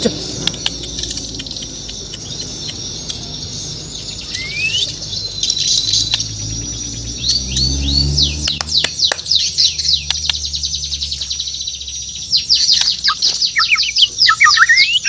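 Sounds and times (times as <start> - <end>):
sharp clicks: 0.3 - 3.6, 4.2 - 6.5, 8.4 - 11.4
bird singing whistled notes: 0.3 - 15.0.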